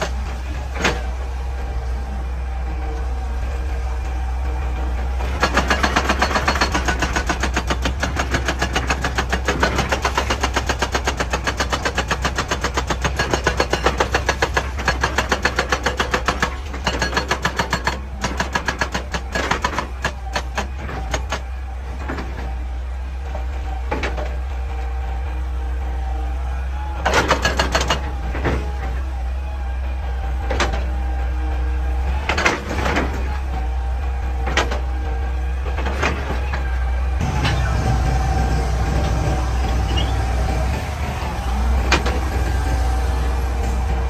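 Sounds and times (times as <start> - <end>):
excavator engine drone: 0.0 - 44.0
hydraulic breaker hammering rock: 0.0 - 44.0.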